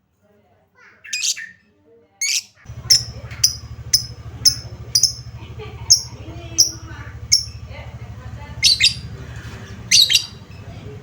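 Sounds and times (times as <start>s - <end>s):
bird chirping shrilly: 1.1s - 1.5s, 2.2s - 5.3s, 5.9s - 7.6s, 8.6s - 9.1s, 9.9s - 10.4s
steady low hum: 2.7s - 11.0s.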